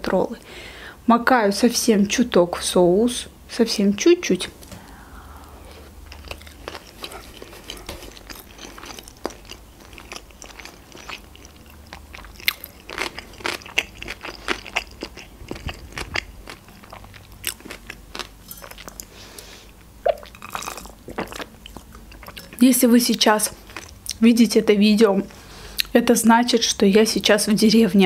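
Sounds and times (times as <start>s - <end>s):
chewing sushi: 4.8s - 22.6s, 23.4s - 24.2s.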